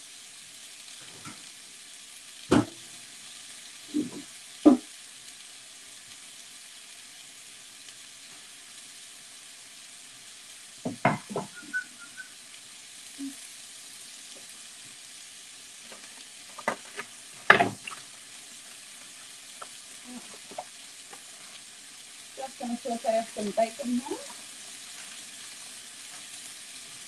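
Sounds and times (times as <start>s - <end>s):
food sizzling in a pan: 0.0s - 27.0s
kitchen knocks and clatter: 2.5s - 2.8s, 10.9s - 11.6s, 15.9s - 18.0s.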